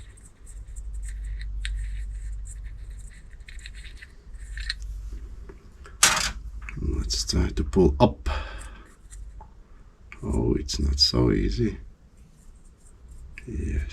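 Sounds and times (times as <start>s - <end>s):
metal clatter: 6.0s - 6.4s.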